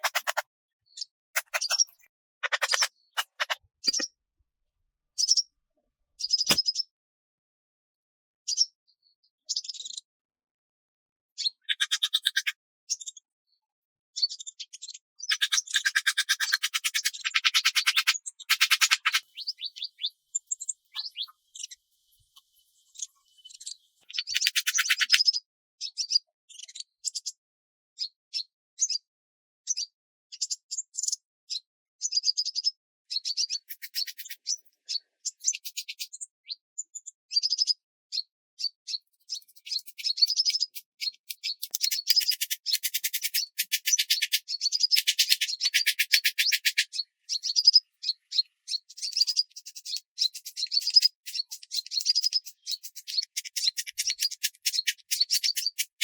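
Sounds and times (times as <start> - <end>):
small animals chirping trills: 0.0 - 4.1, 11.4 - 13.2, 14.2 - 27.3, 32.0 - 36.3, 36.9 - 56.0.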